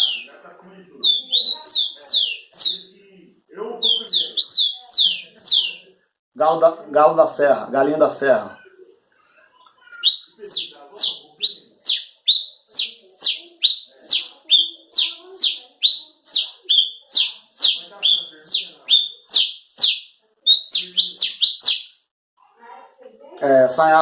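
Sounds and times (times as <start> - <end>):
man whistling bird calls: 0.0 - 0.3, 1.0 - 2.8, 3.8 - 5.8, 10.0 - 22.0.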